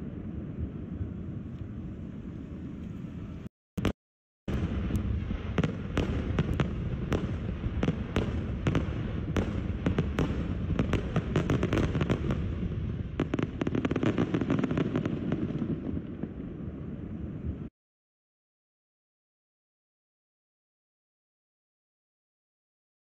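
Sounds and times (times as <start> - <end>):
low rumble: 0.0 - 3.5
fireworks bangs and cracks: 3.8 - 17.7.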